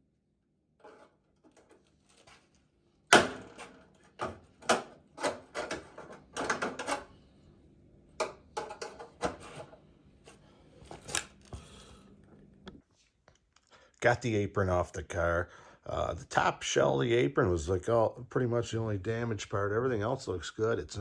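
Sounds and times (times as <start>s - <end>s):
hard objects knocking and clattering: 3.1s - 7.1s, 8.2s - 9.7s.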